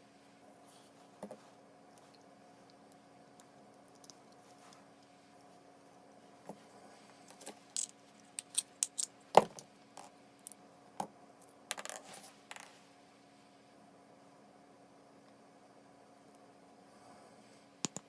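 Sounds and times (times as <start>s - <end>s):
small metal parts clinking: 7.4s - 9.2s.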